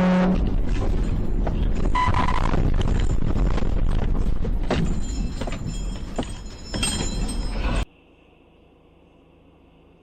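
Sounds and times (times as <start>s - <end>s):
road noise: 0.0s - 7.9s
vehicle engine rumble: 0.0s - 10.0s.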